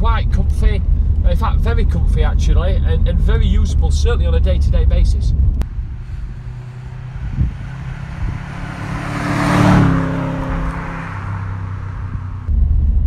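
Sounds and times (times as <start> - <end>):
engine drone inside cabin: 0.0 - 11.5
car driving past: 5.6 - 12.5.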